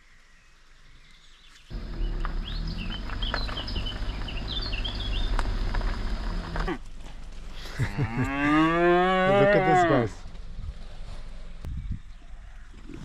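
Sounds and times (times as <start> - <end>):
bird chirps: 0.0 - 6.7
steady low rumble: 1.7 - 8.3.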